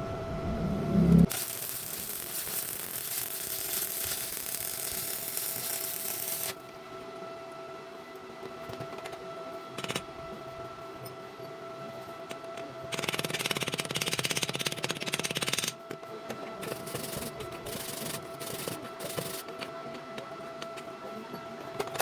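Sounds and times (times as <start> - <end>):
high whine: 0.0 - 6.6
welding arc crackling: 1.2 - 6.6.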